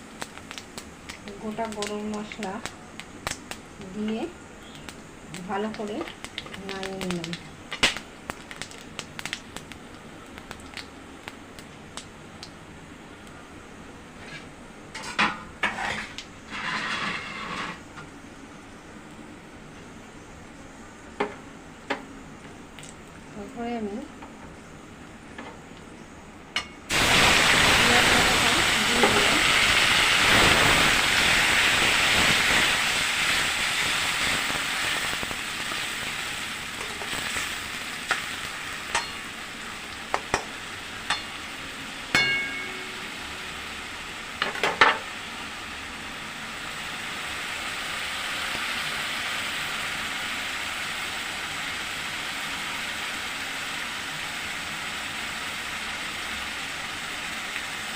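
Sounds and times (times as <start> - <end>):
food sizzling in hot oil: 0.0 - 17.9, 26.6 - 57.9
metal spatula clinking on pan: 38.9 - 39.2, 42.1 - 43.0.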